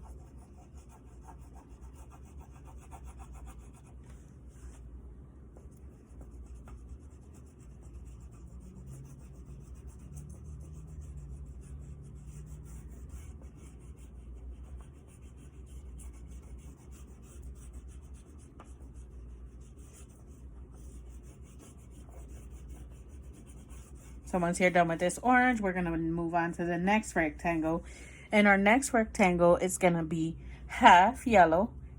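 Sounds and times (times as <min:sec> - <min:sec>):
oil pastel rubbing on paper: 0:00.0 - 0:04.9, 0:05.6 - 0:25.1.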